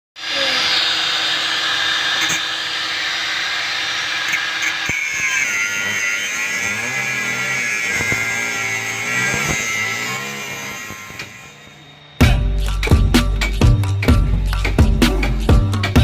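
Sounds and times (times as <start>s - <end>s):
power drill running: 0.2s - 12.2s.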